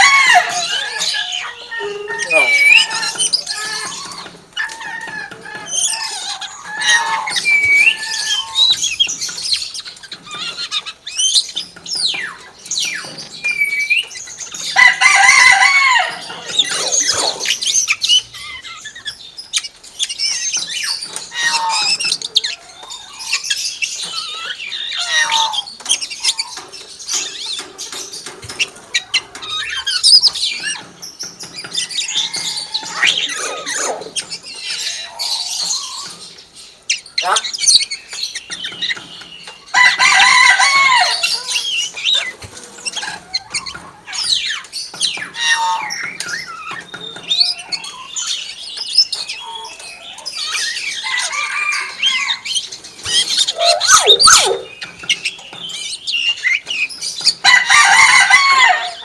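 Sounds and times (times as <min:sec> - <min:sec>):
myna bird whistling and squawking: 0:00.0 - 0:04.3, 0:16.4 - 0:19.0, 0:32.1 - 0:36.2, 0:53.1 - 0:55.3
loud harsh bird call: 0:00.0 - 0:05.0, 0:15.0 - 0:19.0, 0:53.2 - 0:55.0.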